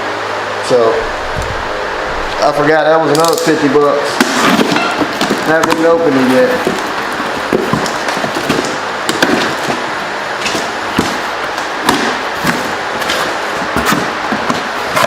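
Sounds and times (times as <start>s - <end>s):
cardboard rustling: 4.2s - 11.7s, 12.4s - 15.0s.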